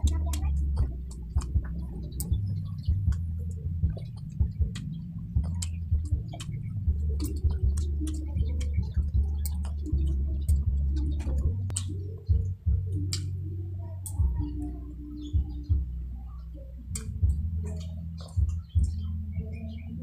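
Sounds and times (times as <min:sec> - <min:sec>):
lip smacks: 0:00.0 - 0:13.4
steady low hum: 0:00.0 - 0:20.0
wet chewing clicks: 0:00.0 - 0:20.0.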